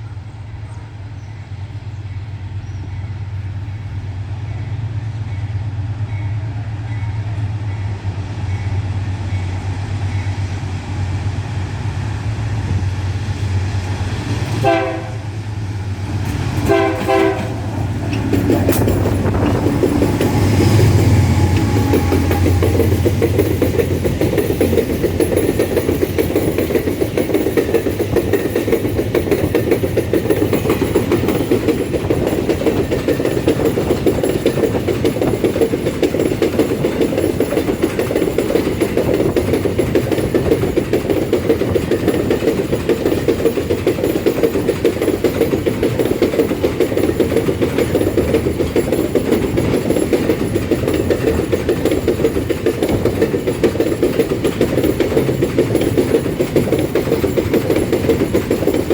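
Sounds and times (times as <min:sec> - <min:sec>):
freight wagons rolling on rails: 0:15.8 - 0:58.9.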